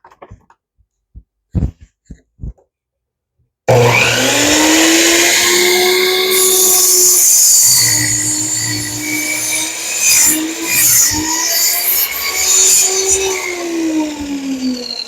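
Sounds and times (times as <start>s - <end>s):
miter saw motor whine: 3.7s - 15.0s.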